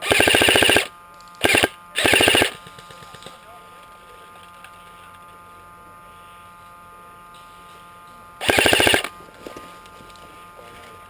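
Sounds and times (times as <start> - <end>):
airsoft gun full-auto burst: 0.0 - 3.1, 8.4 - 9.1.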